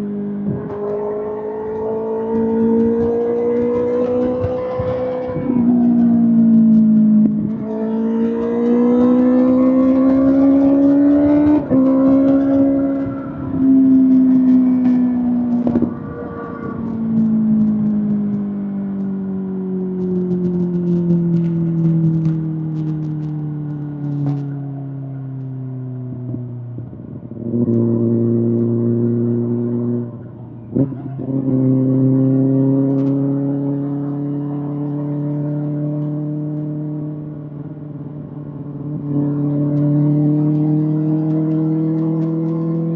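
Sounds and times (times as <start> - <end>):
motorcycle engine revving: 0.0 - 42.9
motorcycle engine revving hard: 1.2 - 18.4.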